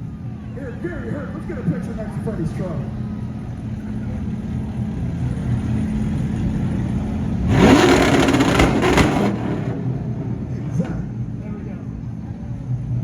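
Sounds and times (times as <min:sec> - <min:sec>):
truck engine revving: 0:01.8 - 0:12.1.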